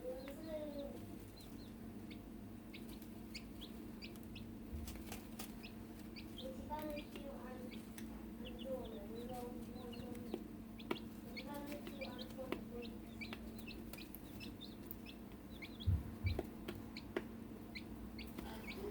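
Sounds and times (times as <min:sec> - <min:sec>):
chicks peeping: 0:00.0 - 0:18.9
steady low hum: 0:00.0 - 0:18.9
dull low thumps: 0:15.7 - 0:16.5.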